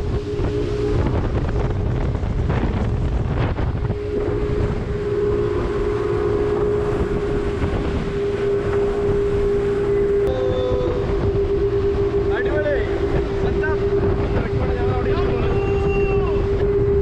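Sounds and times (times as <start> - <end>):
motorboat engine running: 0.0 - 17.0
wind buffeting microphone: 0.0 - 17.0.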